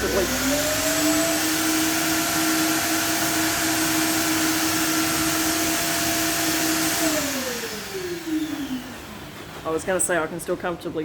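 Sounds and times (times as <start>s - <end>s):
orbital sander: 0.0s - 8.1s
shop vac droning: 0.0s - 11.0s.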